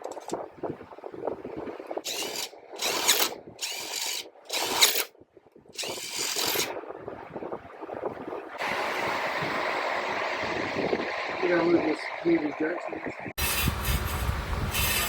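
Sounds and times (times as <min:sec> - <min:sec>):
handheld power tool bursts: 0:02.1 - 0:05.1, 0:05.8 - 0:06.7.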